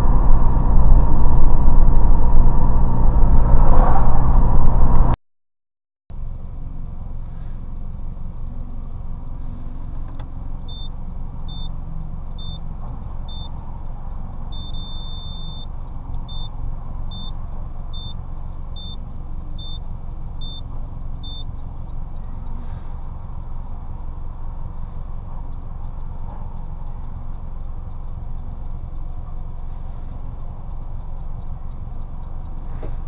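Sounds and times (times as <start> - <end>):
car exhaust idling: 6.1 - 33.0
short high electronic beeps: 12.4 - 12.6, 13.3 - 13.5, 14.6 - 15.7, 16.3 - 16.5, 17.1 - 17.4, 18.0 - 18.2, 18.8 - 19.0, 19.6 - 19.8, 20.4 - 20.6, 21.2 - 21.5.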